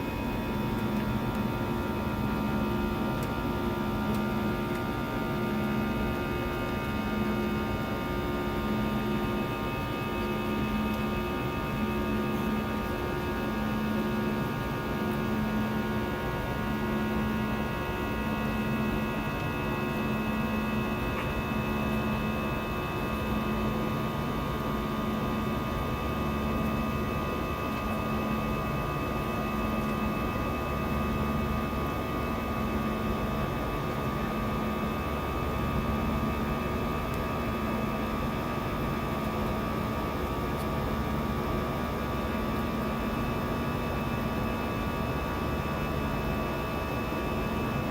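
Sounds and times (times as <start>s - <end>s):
airplane cabin drone: 0.0s - 47.9s.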